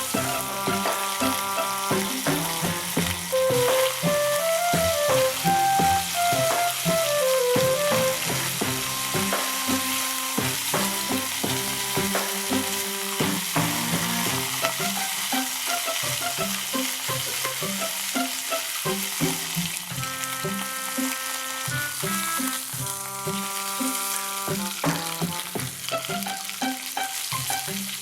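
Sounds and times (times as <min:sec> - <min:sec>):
chicken sizzling in a skillet: 0:00.0 - 0:28.0.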